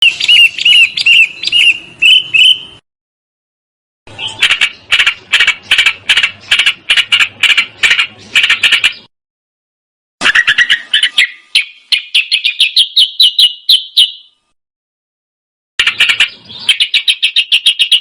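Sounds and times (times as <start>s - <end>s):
songbird whistled notes: 0.0s - 2.8s, 10.2s - 14.4s
bird buzzy chattering: 4.1s - 9.1s, 15.8s - 18.0s.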